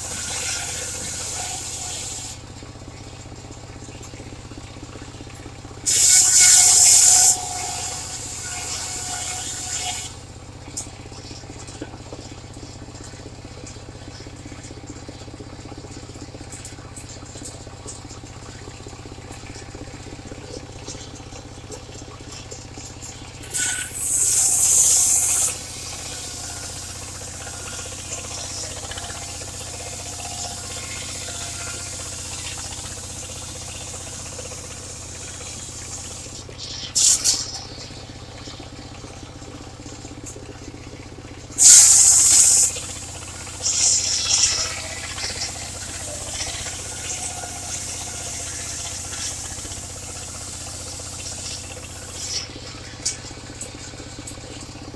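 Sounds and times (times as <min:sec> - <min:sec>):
saw blade cutting wood: 0:00.0 - 0:02.4, 0:05.9 - 0:10.2, 0:23.4 - 0:32.8, 0:43.6 - 0:53.2
sawmill engine running: 0:00.0 - 0:11.1, 0:15.0 - 0:54.9.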